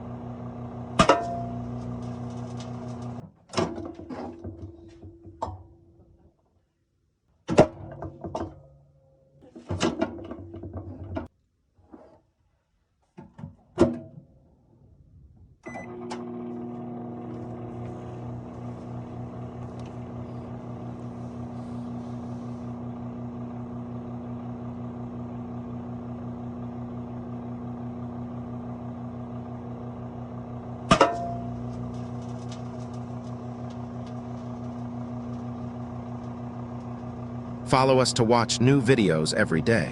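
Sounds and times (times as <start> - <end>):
microwave oven humming: 0.0 - 3.2, 15.6 - 39.9.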